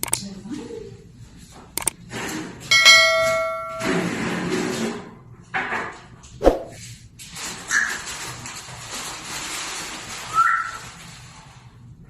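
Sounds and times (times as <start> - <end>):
metallic clang: 2.7 - 4.2.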